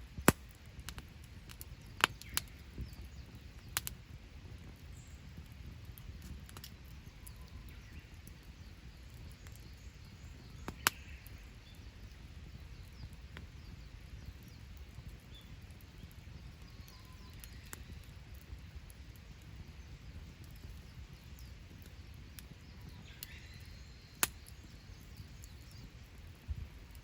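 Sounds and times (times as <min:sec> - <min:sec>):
campfire crackling and popping: 0:00.0 - 0:27.0.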